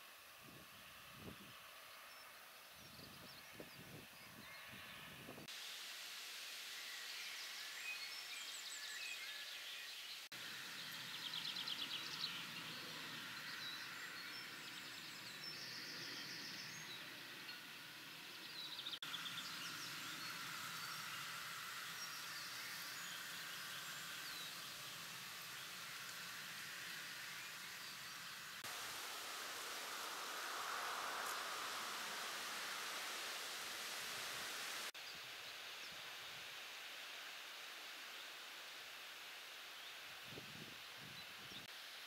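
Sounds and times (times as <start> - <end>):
steady outdoor hiss: 0.0 - 42.0
small birds singing and calling: 1.9 - 5.4, 6.9 - 28.7.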